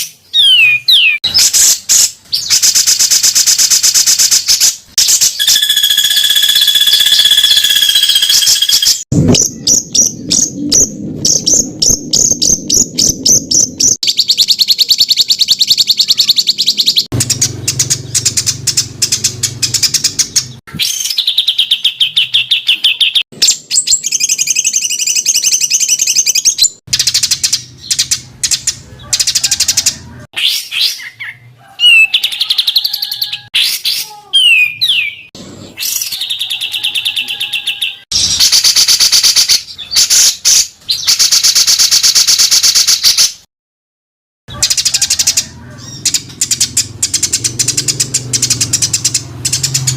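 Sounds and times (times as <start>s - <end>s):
songbird chirping and trilling: 0.0s - 38.4s, 44.5s - 49.9s
gliding bird whistles: 5.0s - 10.0s.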